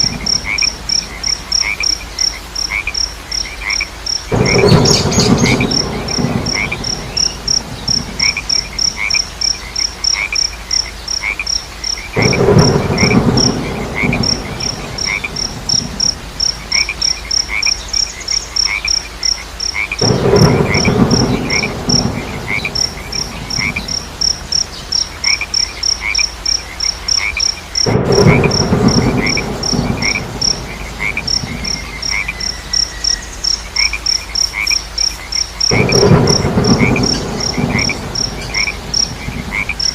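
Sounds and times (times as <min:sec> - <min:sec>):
high-pitched insect chirping: 0:00.0 - 0:39.2
frogs croaking: 0:00.0 - 0:39.9
quiet repeated chirp: 0:04.3 - 0:10.0.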